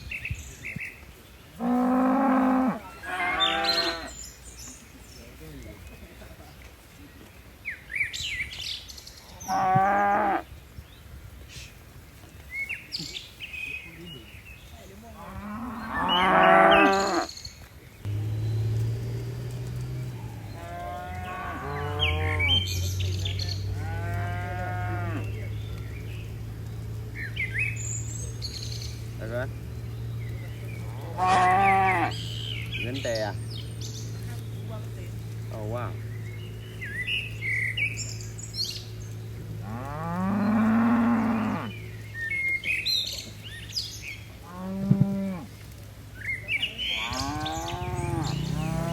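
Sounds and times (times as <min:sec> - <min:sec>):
cattle mooing: 0:01.6 - 0:04.2, 0:09.5 - 0:10.4, 0:15.2 - 0:17.3, 0:18.1 - 0:25.5, 0:30.8 - 0:32.2, 0:39.6 - 0:41.7, 0:46.9 - 0:48.9
bird chirp: 0:10.8 - 0:44.7, 0:46.1 - 0:48.9.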